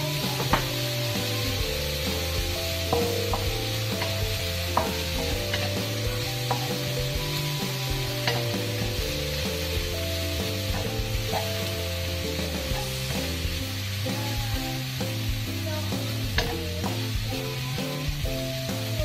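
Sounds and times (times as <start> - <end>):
spatula scraping metal wok: 0.0 - 13.3
food sizzling in a wok: 0.0 - 19.0.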